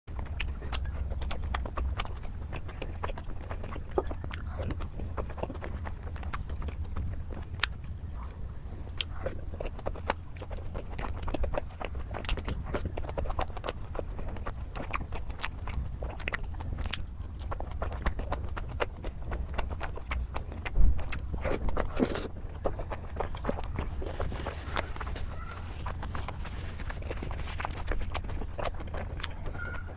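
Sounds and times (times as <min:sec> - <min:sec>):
eating clicks and smacks: 0:00.1 - 0:29.9
steady low hum: 0:00.1 - 0:29.9
person biting and chewing food: 0:08.9 - 0:29.9.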